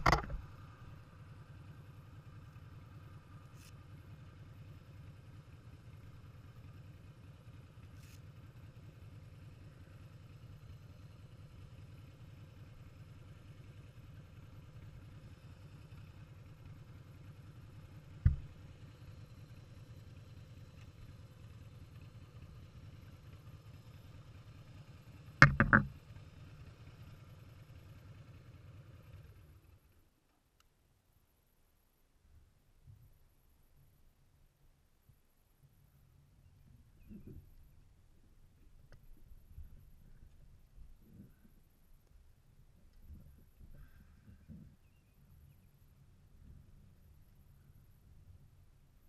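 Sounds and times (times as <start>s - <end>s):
sharp knocks: 0.0s - 0.4s, 18.2s - 18.5s, 25.4s - 25.9s
motorcycle engine running: 0.0s - 30.1s.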